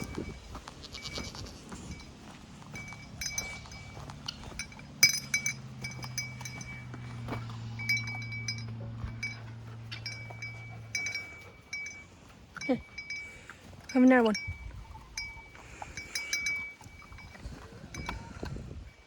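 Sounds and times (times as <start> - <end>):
metal dog tags jingling: 0.0 - 19.0.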